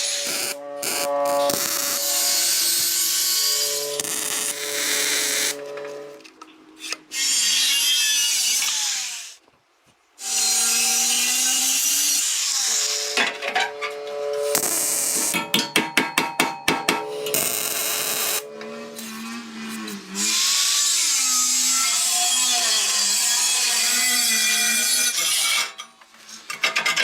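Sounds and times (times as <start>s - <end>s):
power tool whining: 0.0s - 9.4s.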